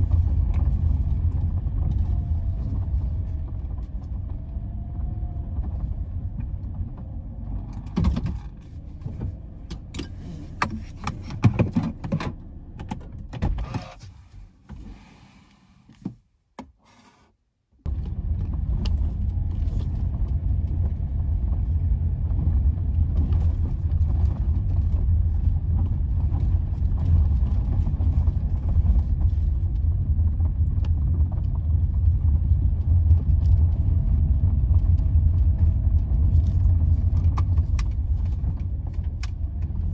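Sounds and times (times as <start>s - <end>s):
car driving heard from inside: 0.0s - 15.8s, 17.8s - 39.9s
knocks and clatter: 5.6s - 14.0s.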